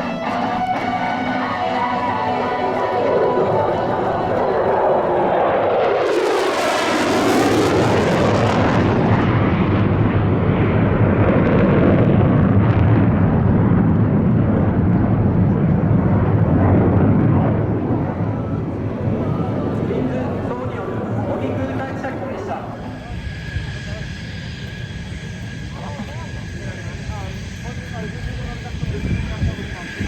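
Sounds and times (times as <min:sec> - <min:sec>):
jet aircraft engine passing: 0:00.0 - 0:30.0.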